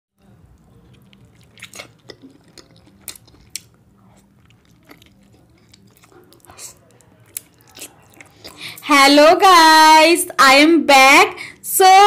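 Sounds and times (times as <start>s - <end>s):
soft chewing: 0.2s - 8.8s
faint steady hum: 0.2s - 12.0s.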